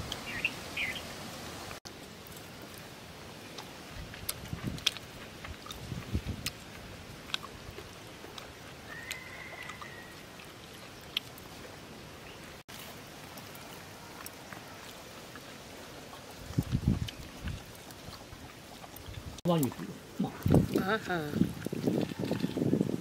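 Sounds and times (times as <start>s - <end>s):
outdoor background noise: 0.0s - 23.0s
person chewing food: 2.3s - 11.7s, 12.6s - 20.8s.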